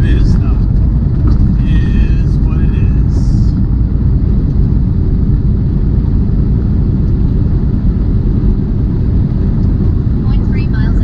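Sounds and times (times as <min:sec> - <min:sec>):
truck engine and tyre rumble: 0:00.0 - 0:11.0.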